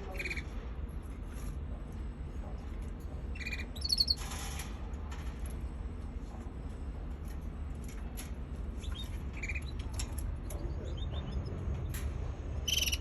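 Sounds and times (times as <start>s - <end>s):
canary chirping and trilling: 0.0s - 0.6s, 3.2s - 4.4s, 8.7s - 13.0s.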